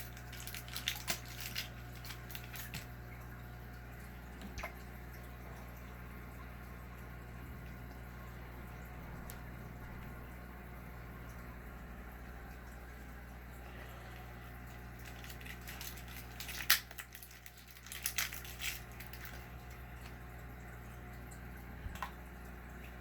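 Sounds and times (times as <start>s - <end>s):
crackling handling noises: 0.0s - 5.4s, 12.2s - 20.4s
aquarium equipment humming: 0.0s - 23.0s.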